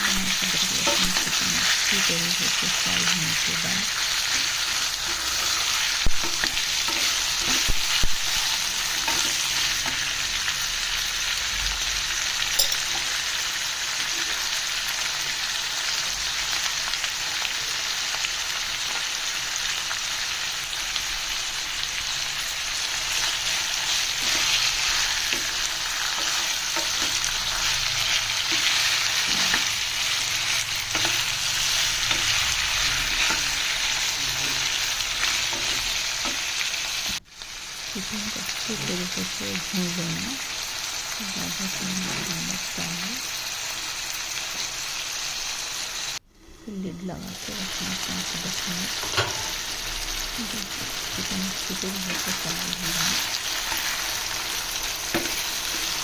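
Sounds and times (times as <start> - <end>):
chicken sizzling in hot oil: 0.0 - 46.2, 47.1 - 56.0.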